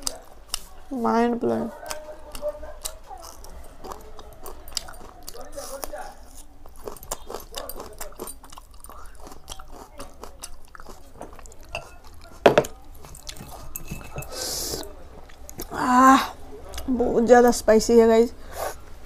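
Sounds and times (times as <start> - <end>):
chewing and mouth sounds: 1.6 - 15.9.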